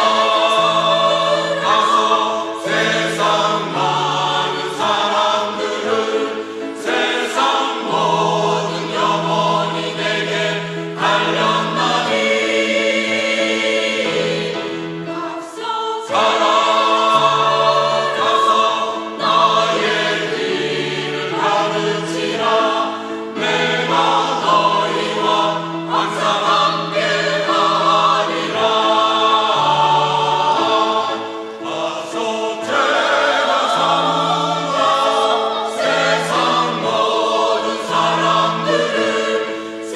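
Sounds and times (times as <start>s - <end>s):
church choir singing: 0.0s - 39.9s.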